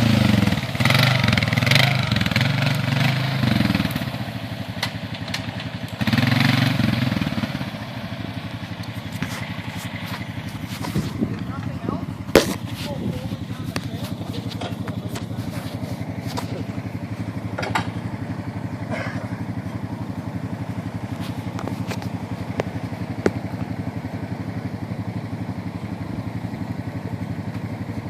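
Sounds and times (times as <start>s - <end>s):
atv engine idling: 0.0s - 28.0s
sharp clicks and knocks: 12.3s - 12.9s, 17.5s - 18.0s.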